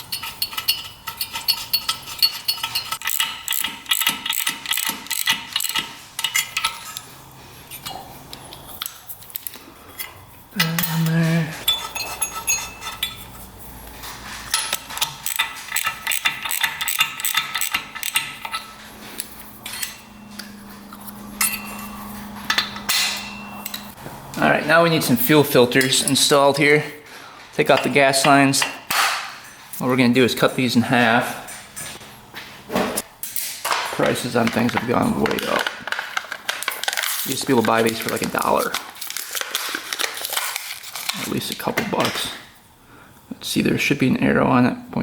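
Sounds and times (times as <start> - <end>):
hand ratchet clicking: 0.0 - 7.0, 14.5 - 18.7
metal tools clinking: 0.0 - 7.1, 7.7 - 13.6, 14.4 - 24.0
low hum: 17.8 - 24.4.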